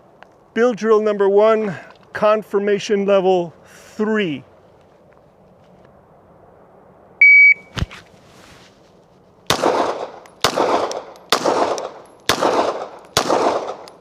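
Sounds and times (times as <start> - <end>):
shot timer beep: 7.2 - 7.7
pistol shots echoing: 9.5 - 14.0.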